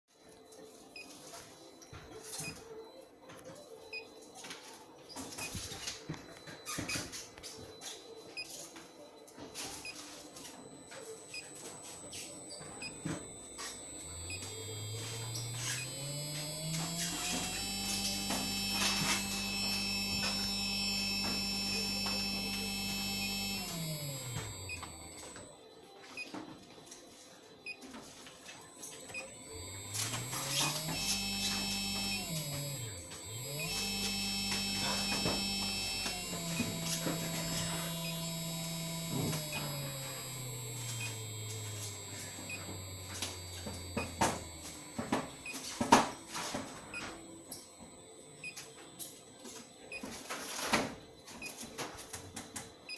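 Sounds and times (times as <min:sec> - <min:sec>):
servo motor whining: 0:09.8 - 0:25.6, 0:28.7 - 0:49.0
high steady drive whine: 0:10.6 - 0:25.5, 0:29.0 - 0:48.6.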